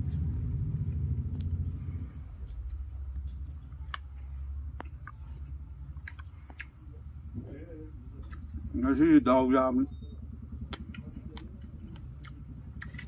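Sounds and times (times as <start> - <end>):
steady low rumble: 0.0 - 13.0
person chewing: 1.3 - 6.9, 8.2 - 8.6, 10.7 - 13.0
clicks of fingers and food: 5.9 - 6.8, 10.6 - 13.0.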